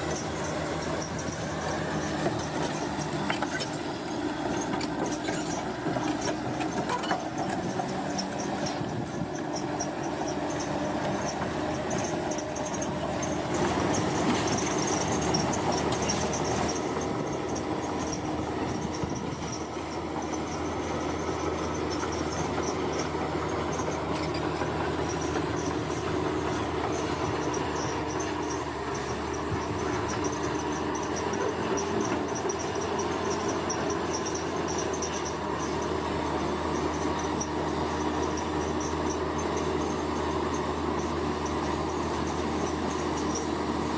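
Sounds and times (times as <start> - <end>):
bulldozer diesel engine running: 0.0 - 43.9.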